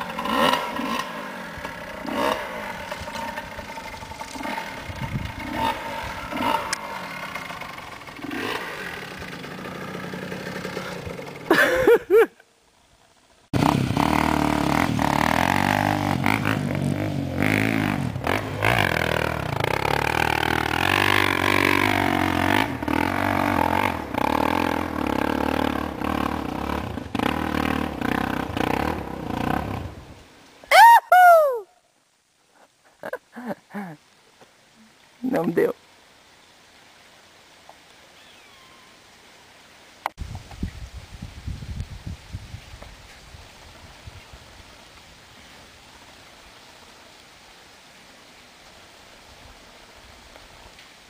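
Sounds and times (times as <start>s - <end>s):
dirt bike engine revving: 0.0s - 11.8s, 13.5s - 30.2s.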